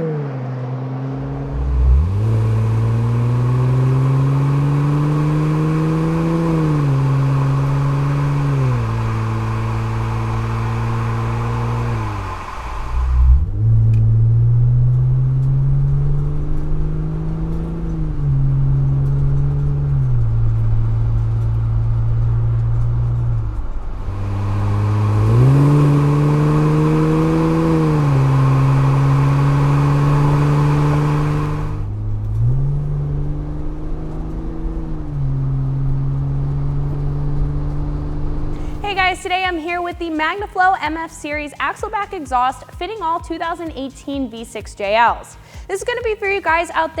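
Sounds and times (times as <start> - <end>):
car exhaust engine revving: 0.0 - 47.0
rushing noise: 6.1 - 13.9.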